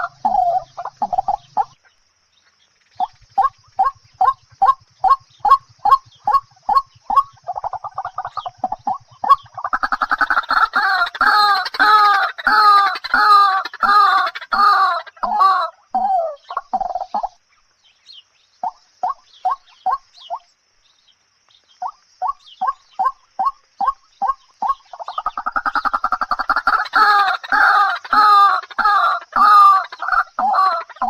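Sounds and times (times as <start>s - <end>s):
chicken clucking: 0.0s - 1.8s, 3.0s - 17.4s, 22.6s - 31.0s.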